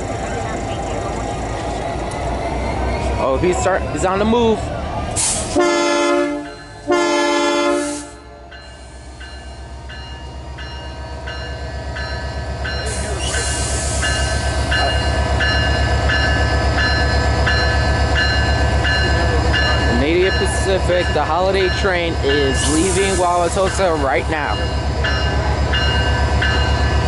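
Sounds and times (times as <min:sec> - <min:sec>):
diesel locomotive engine throbbing: 0:00.0 - 0:27.0
locomotive horn blasts: 0:05.5 - 0:08.4
locomotive bell ringing: 0:06.0 - 0:07.6, 0:08.2 - 0:27.0
hiss of air: 0:13.0 - 0:14.2.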